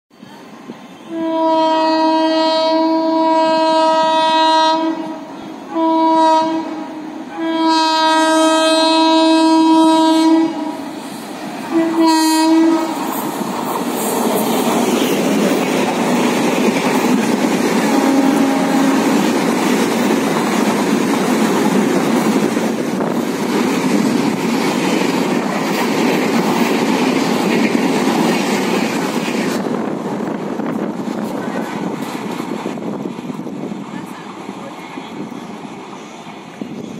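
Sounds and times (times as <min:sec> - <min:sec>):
locomotive horn blasts: 0:01.0 - 0:10.9, 0:11.7 - 0:13.0, 0:17.8 - 0:19.2.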